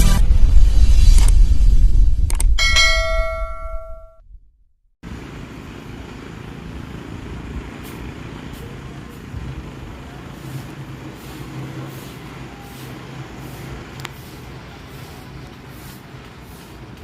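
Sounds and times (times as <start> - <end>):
ringing bell-like chime: 2.6 - 4.2
low engine hum: 5.0 - 17.0
street traffic noise: 5.0 - 17.0.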